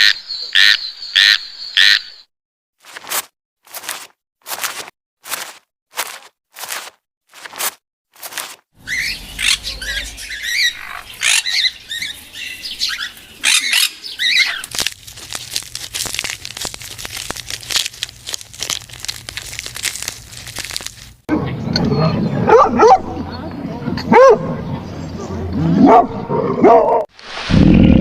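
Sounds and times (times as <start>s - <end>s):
bird chirping and squawking: 8.8s - 14.7s.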